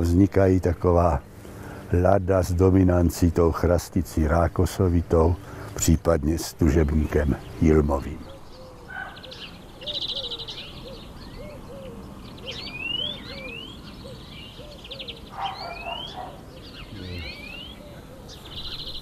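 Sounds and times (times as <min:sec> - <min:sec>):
rapid high bird trills: 0:06.8 - 0:19.0
rising whistled bird notes: 0:08.2 - 0:19.0
short low bird notes: 0:15.6 - 0:19.0.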